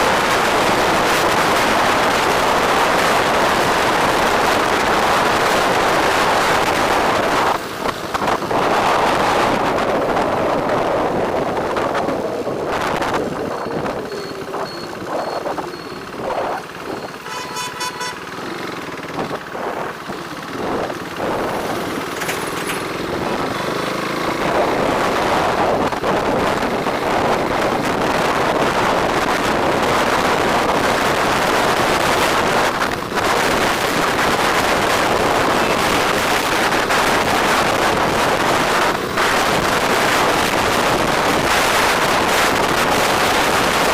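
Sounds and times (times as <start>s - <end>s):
wind rushing over microphone: 0.0s - 17.1s, 18.7s - 43.9s
road traffic: 0.0s - 43.9s
vehicle horns honking: 17.1s - 18.5s.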